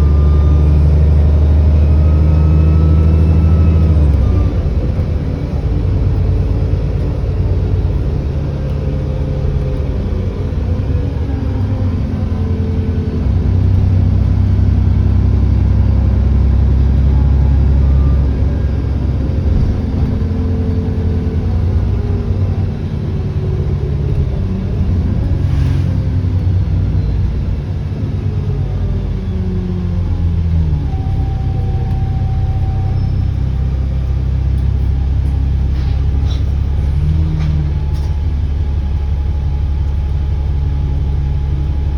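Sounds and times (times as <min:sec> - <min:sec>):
bus diesel engine running: 0:00.0 - 0:41.9
turbo whine: 0:26.9 - 0:36.2.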